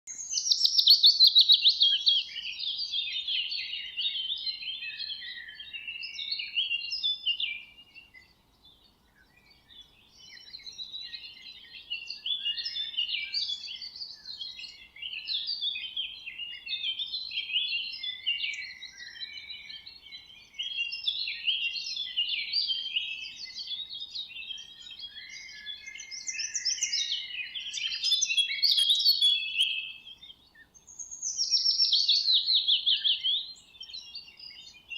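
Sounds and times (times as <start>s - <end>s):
small bird chirping and trilling: 0.1s - 7.4s, 17.8s - 34.9s.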